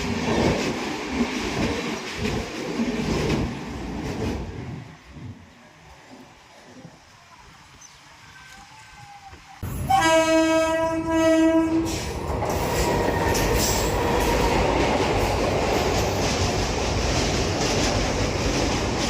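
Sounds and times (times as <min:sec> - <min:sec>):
train wheels rumbling on rails: 0:00.0 - 0:07.0, 0:08.4 - 0:19.0
train horn blast: 0:09.6 - 0:12.1.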